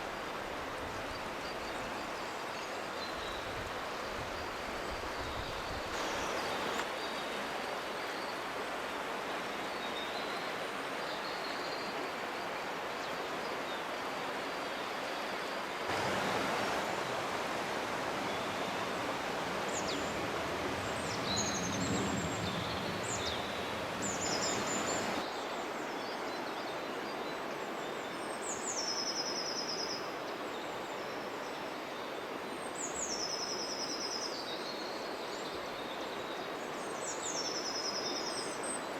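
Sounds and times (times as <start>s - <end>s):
rushing outdoor ambient noise: 0.0s - 28.9s
high bird calls: 15.9s - 25.2s.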